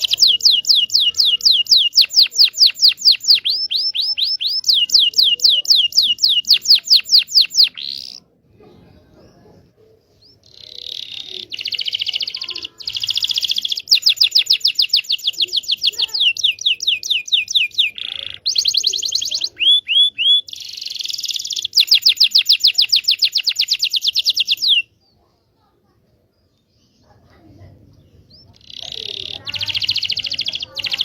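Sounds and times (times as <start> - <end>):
sharp bird notes: 0.0 - 8.2
canary singing rapid trills: 0.0 - 8.3, 10.1 - 25.0, 28.0 - 31.0.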